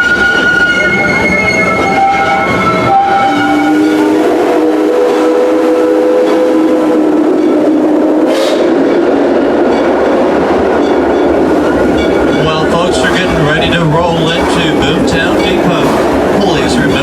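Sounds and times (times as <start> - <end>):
train whistle chord: 0.0 - 8.8
train running and wheel clatter: 0.0 - 17.0.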